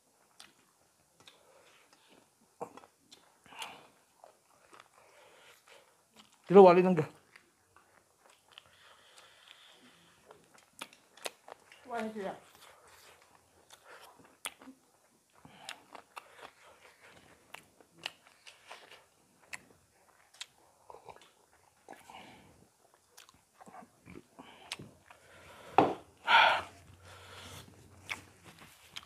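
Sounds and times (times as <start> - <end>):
people chewing and lip-smacking: 0.1 - 6.5, 7.1 - 29.0
loud breathy burst: 25.6 - 27.6.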